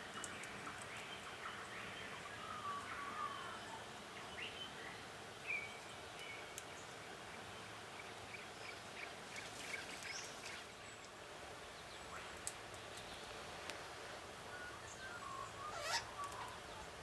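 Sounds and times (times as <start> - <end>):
outdoor background noise: 0.0 - 17.0
faint bird chirps: 14.5 - 17.0.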